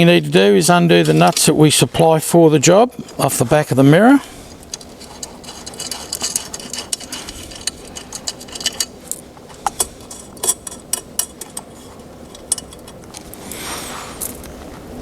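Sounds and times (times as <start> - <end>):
metallic clicks of nuts undone: 4.6 - 13.5.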